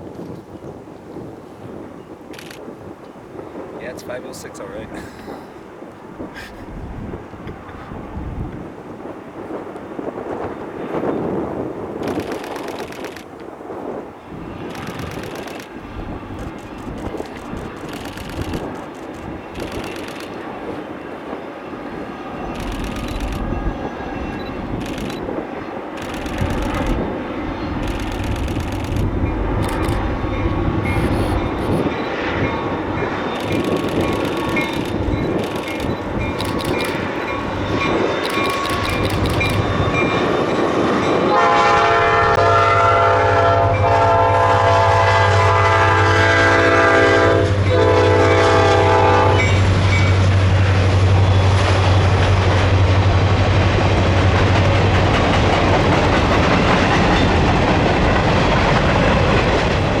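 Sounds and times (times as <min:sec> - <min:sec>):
locomotive engine hum: 0:00.3 - 1:00.0
train wheels clattering on rails: 0:09.5 - 0:13.5, 0:14.4 - 0:42.6, 0:45.2 - 1:00.0
locomotive air horn: 0:41.3 - 0:49.6.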